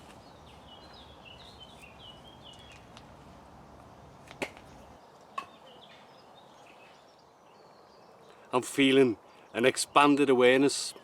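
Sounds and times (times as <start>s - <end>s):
small bird chirping: 0.0s - 3.0s.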